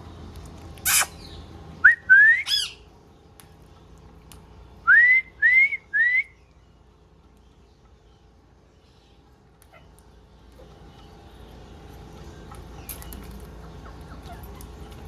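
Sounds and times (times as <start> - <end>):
parrot squawk: 0.8 - 1.2, 2.4 - 2.8
parrot whistled calls: 0.9 - 2.8.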